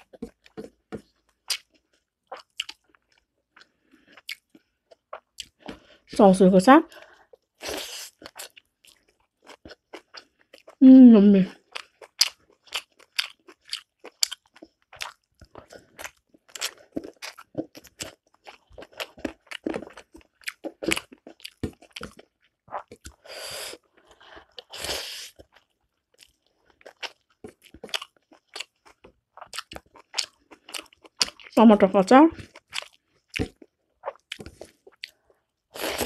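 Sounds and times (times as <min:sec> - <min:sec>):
wet chewing and mouth smacking: 0:00.0 - 0:06.0, 0:07.2 - 0:10.8, 0:11.5 - 0:31.6, 0:32.4 - 0:36.0.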